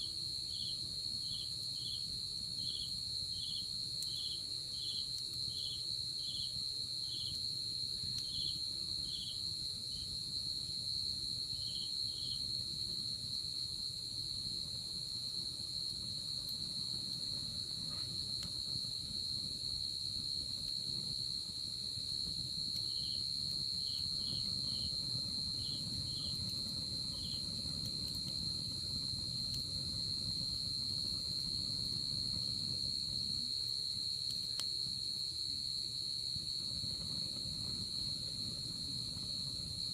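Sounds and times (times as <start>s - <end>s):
insect chirping in pulses: 22.7s - 34.6s.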